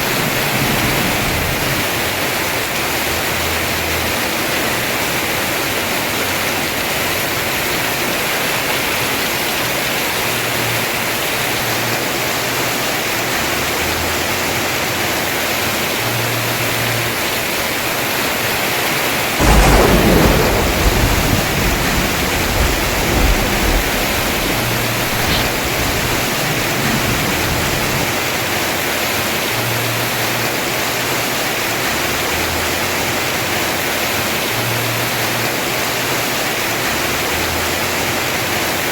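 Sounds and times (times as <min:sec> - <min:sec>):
thunder crack and rumble: 0:00.0 - 0:03.3, 0:19.3 - 0:28.6
heavy rain on a roof: 0:00.0 - 0:38.9.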